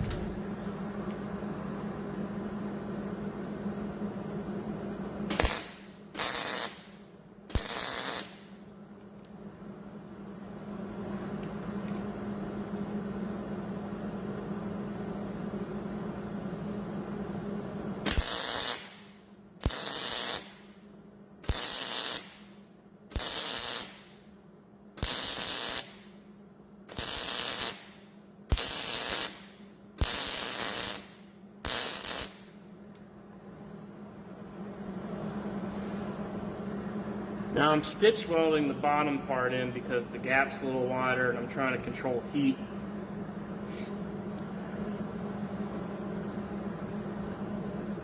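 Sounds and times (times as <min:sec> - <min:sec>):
welder arc crackle: 0:05.3 - 0:09.4, 0:18.0 - 0:24.4, 0:25.0 - 0:26.3, 0:26.9 - 0:32.6.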